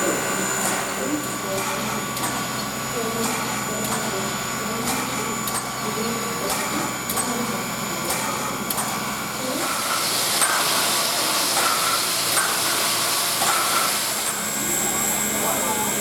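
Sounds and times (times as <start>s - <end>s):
steam locomotive hissing: 9.4s - 14.5s.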